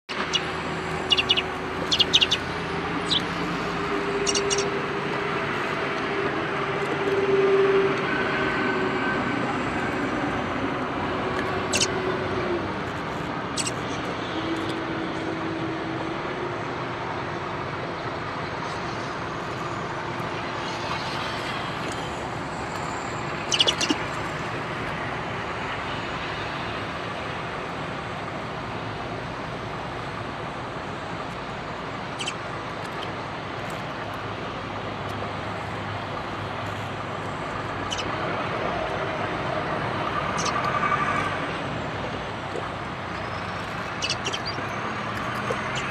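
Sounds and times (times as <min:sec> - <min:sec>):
road traffic hum: 0:00.0 - 0:45.9
small birds chirping: 0:00.1 - 0:03.4, 0:04.2 - 0:04.7, 0:11.7 - 0:11.9, 0:13.6 - 0:14.0, 0:23.4 - 0:24.1, 0:32.2 - 0:32.4, 0:37.8 - 0:38.1, 0:40.4 - 0:40.6, 0:43.2 - 0:45.9.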